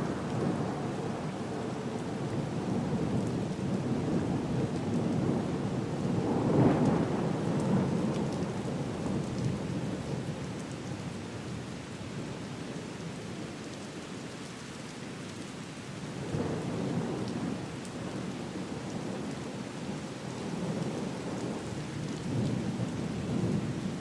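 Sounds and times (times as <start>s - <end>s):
steady rain: 0.0s - 24.0s.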